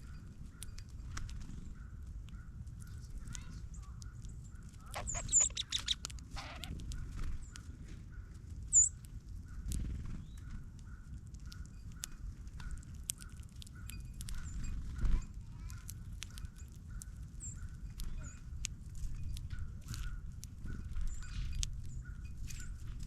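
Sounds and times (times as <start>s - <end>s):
high bird chips: 0.0s - 7.8s, 8.6s - 22.9s
beaks and feet clicking on seed: 0.0s - 23.0s.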